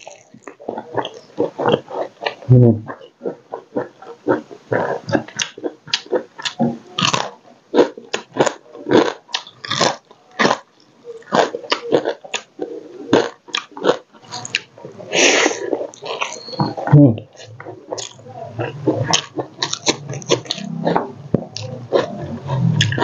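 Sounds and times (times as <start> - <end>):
crunching and chewing: 0.0 - 23.0
wet mouth sounds: 0.0 - 23.0.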